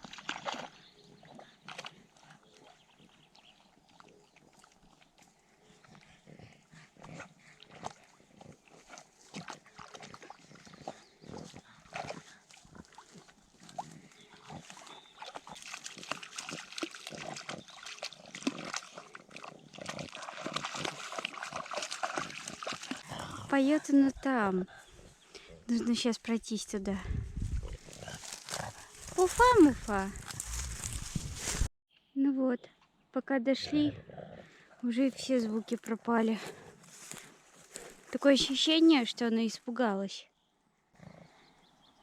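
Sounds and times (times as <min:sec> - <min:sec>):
crackles and rustles: 0:27.4 - 0:31.7.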